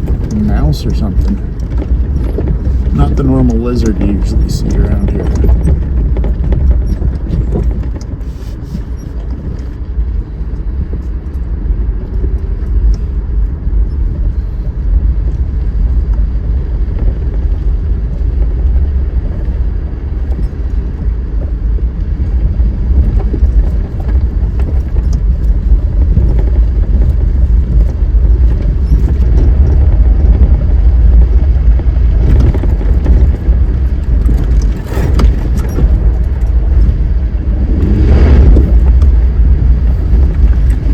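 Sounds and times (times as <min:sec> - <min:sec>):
ticks and rattles: 0:00.0 - 0:31.3, 0:32.0 - 0:40.9
car driving on dirt trail: 0:00.0 - 0:40.9.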